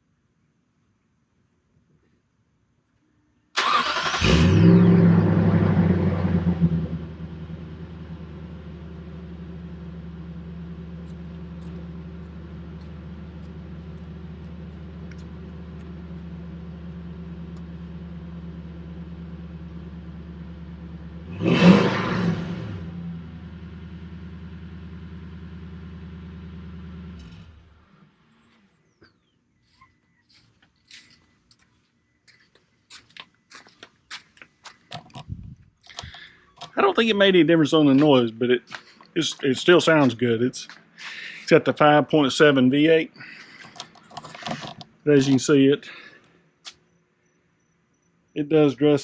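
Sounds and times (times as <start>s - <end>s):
engine revving: 3.6s - 28.8s
engine idling through exhaust: 4.2s - 29.2s, 37.9s - 46.3s.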